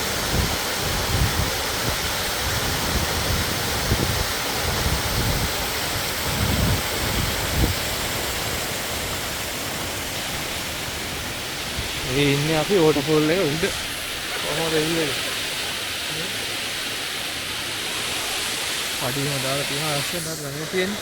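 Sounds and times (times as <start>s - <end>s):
water rushing over waterfall: 0.0s - 21.0s
wind buffeting microphone: 0.1s - 8.6s, 10.2s - 15.8s.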